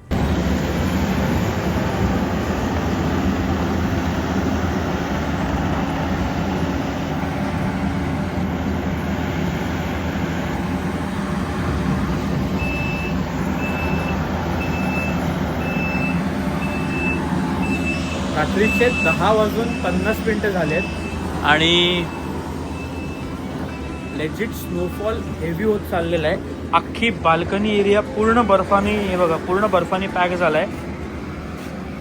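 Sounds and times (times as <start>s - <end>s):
large vehicle engine running: 0.0s - 32.0s
reversing alarm beeping: 1.4s - 26.4s.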